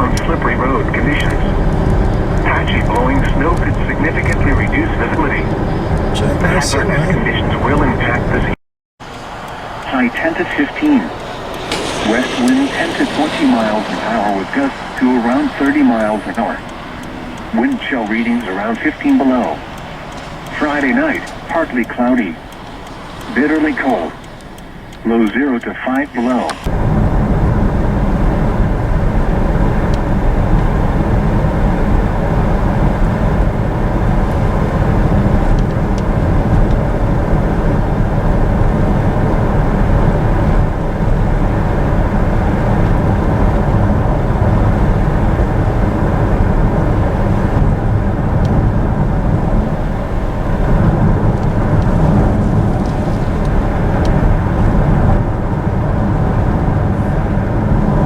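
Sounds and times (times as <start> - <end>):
vehicle cabin road noise: 0.0 - 58.0
faint clicks: 9.1 - 26.7.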